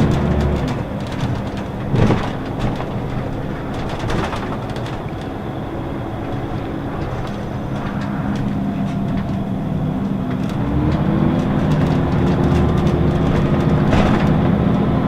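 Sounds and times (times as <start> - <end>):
bus diesel engine drone: 0.0 - 15.0
bus fittings rattling and clicking: 0.0 - 15.0.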